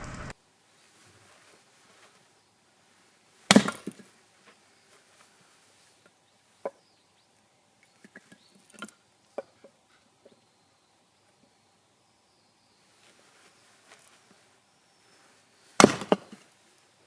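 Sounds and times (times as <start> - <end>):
axe chopping firewood: 15.8 - 16.2.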